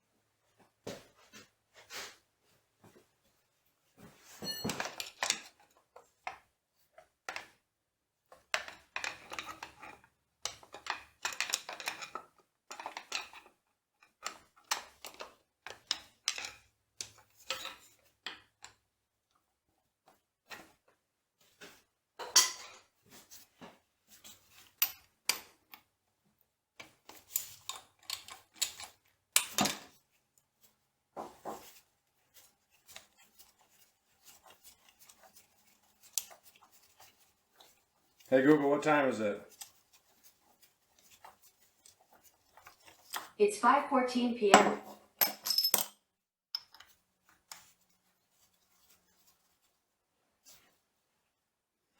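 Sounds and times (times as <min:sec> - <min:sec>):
metal tools clinking: 0:04.4 - 0:05.3, 0:44.5 - 0:46.0.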